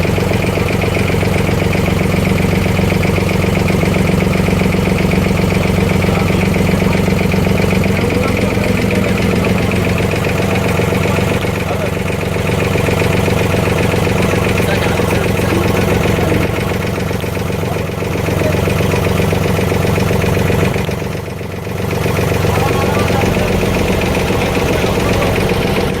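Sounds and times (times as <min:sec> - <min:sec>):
motorboat engine running: 0:00.0 - 0:26.0.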